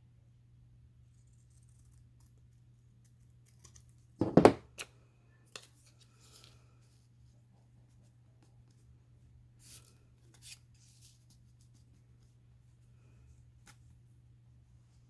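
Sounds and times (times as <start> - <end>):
loud knock on table: 4.2 - 4.6.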